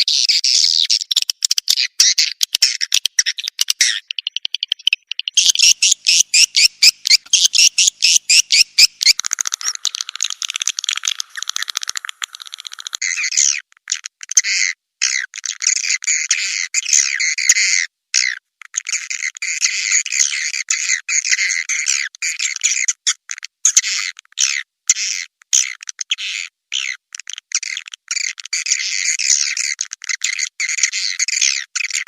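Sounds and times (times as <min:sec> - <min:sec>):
recorded swiftlet chirping: 0:00.0 - 0:14.0.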